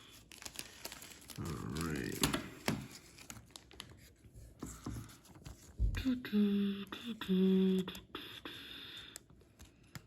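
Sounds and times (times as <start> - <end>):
trading cards rustling and clicking: 9.1 - 10.0.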